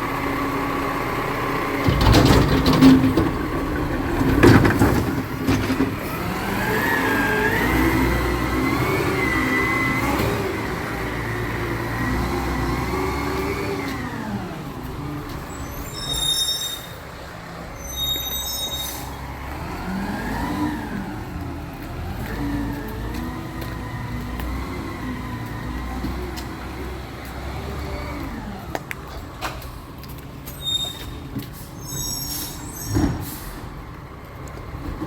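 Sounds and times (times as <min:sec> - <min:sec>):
diesel truck engine revving: 0:00.0 - 0:30.5
high-pitched squeaks: 0:15.4 - 0:17.1, 0:17.7 - 0:19.2, 0:30.5 - 0:33.4.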